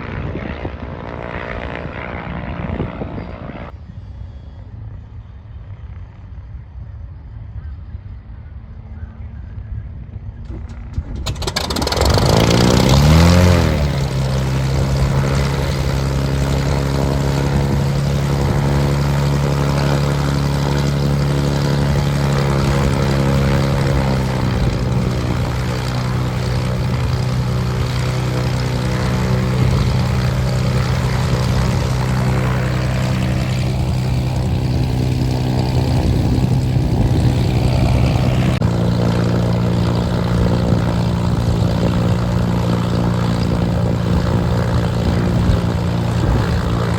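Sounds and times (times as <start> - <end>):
propeller aircraft engine: 0.0 - 46.9.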